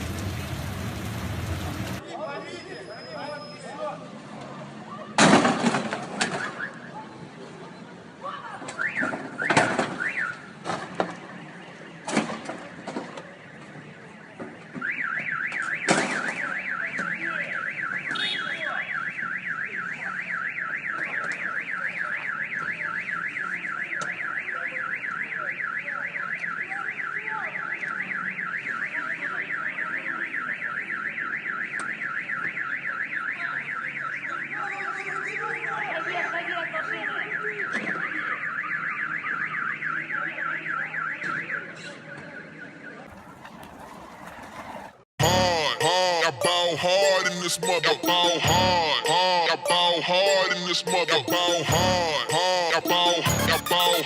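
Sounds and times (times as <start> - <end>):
car alarm warbling siren: 8.8 - 10.5, 14.7 - 54.0.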